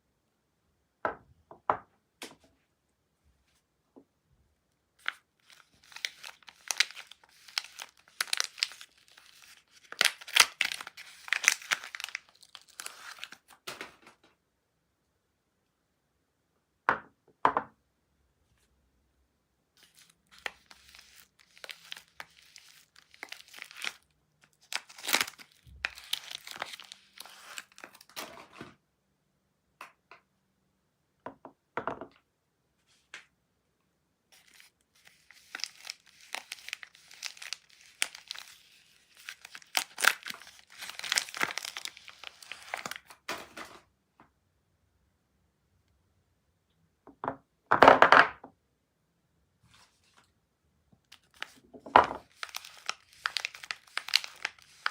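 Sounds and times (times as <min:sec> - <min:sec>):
wrapper crinkling: 0:05.0 - 0:13.6, 0:19.8 - 0:28.2, 0:34.4 - 0:43.6, 0:51.1 - 0:54.9.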